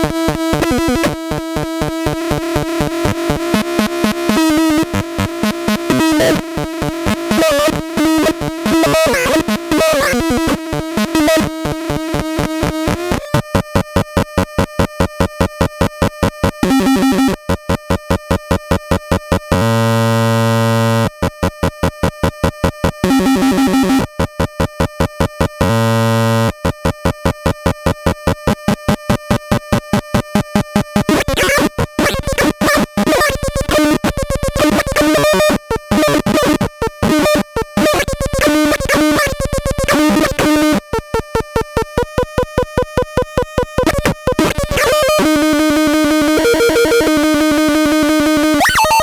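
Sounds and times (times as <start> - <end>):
pulsing square-wave synth buzz: 0.0 - 49.0
warbling synth tones: 30.9 - 40.8, 48.4 - 49.0.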